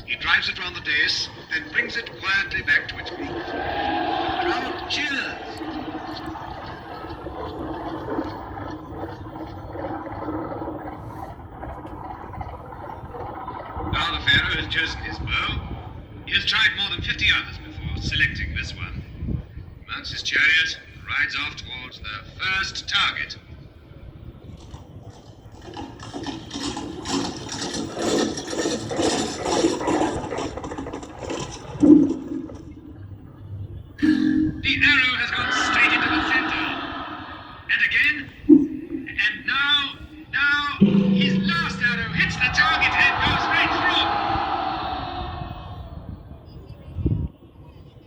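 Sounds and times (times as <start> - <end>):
sound effects over loudspeakers: 0.0 - 8.2, 34.0 - 45.7
wheels rattling: 24.5 - 33.3
hooves clattering: 24.6 - 32.7
steady low hum: 33.2 - 45.0.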